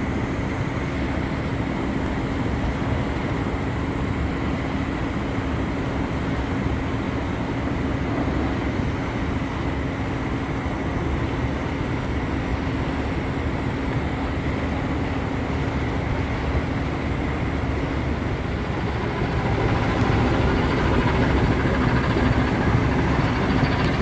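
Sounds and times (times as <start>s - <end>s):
low mechanical hum: 0.0s - 24.0s
even rushing noise: 16.3s - 24.0s.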